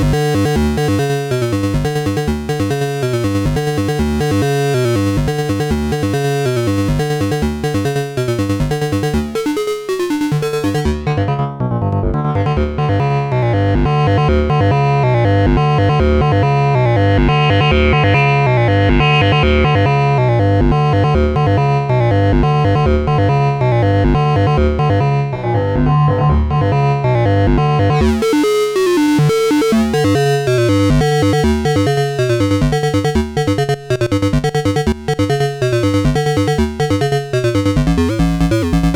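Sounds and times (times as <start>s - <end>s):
synthesizer sequenced pattern: 0.0s - 11.2s, 17.1s - 21.5s, 27.5s - 38.9s.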